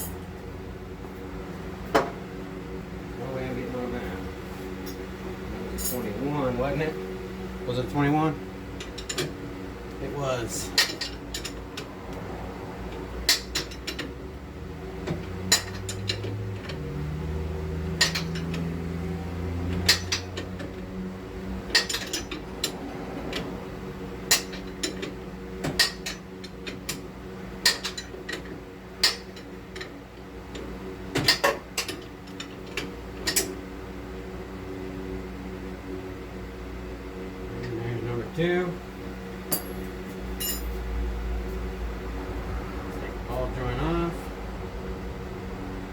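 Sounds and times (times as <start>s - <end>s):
low shop hum: 0.0s - 45.9s
hand tools clinking on metal: 39.5s - 40.8s.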